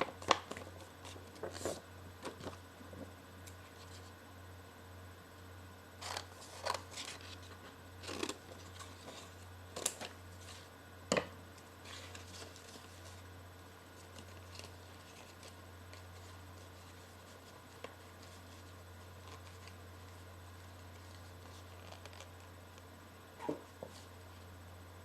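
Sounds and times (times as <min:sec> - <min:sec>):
paper crinkling and rustling: 0:00.0 - 0:02.6, 0:06.0 - 0:10.7, 0:11.8 - 0:13.2, 0:13.9 - 0:22.5
steady low hum: 0:00.0 - 0:25.0.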